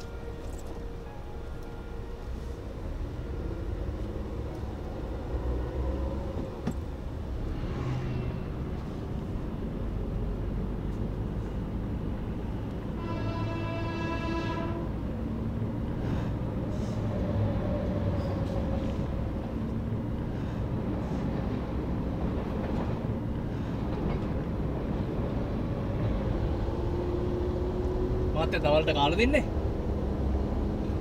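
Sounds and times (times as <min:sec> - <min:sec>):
train horn: 0:00.0 - 0:04.2, 0:12.9 - 0:15.0
train rumbling and rattling past: 0:00.0 - 0:31.0.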